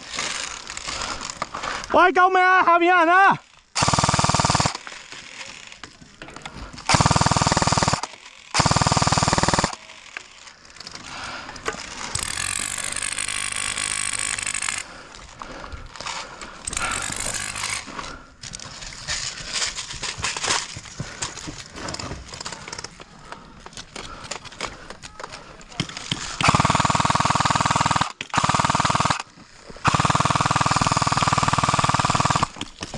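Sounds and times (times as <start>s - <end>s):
airsoft gun firing bursts: 3.8s - 4.9s, 6.9s - 10.1s, 25.8s - 32.7s.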